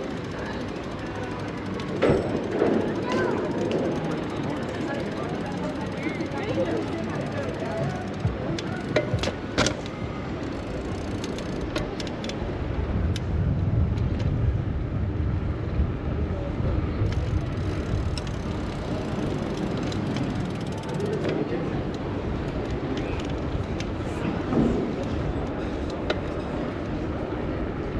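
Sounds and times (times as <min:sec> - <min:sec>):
sharp clicks and rattles: 0:00.0 - 0:12.4, 0:17.0 - 0:24.0
bicycle tyres rushing: 0:00.0 - 0:27.9.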